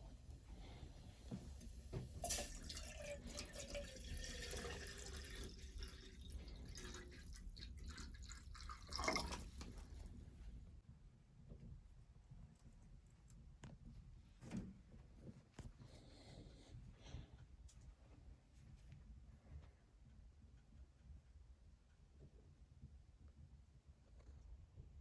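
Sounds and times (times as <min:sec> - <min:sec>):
water dripping and trickling: 0:01.9 - 0:10.0.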